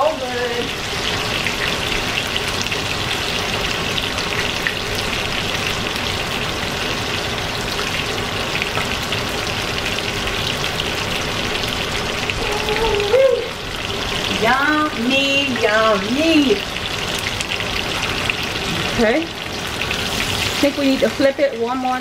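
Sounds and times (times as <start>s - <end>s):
chicken frying in oil: 0.0s - 22.0s.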